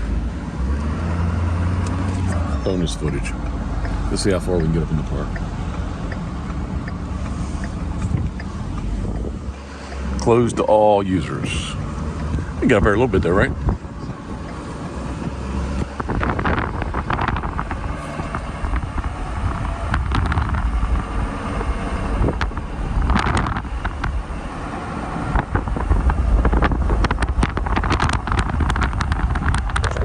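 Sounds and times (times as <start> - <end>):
car engine and tyre rumble: 0.0 - 30.0
wind noise on microphone: 5.0 - 9.6, 11.3 - 30.0.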